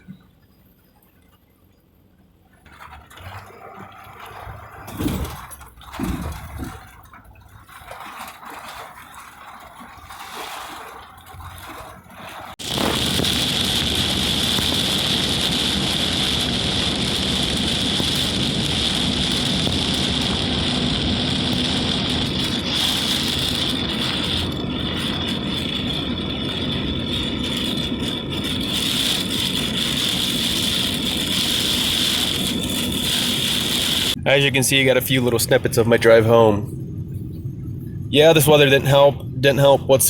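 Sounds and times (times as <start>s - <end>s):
water sloshing and gurgling: 0.0s - 40.0s
vehicle driving in heavy rain: 12.5s - 34.2s.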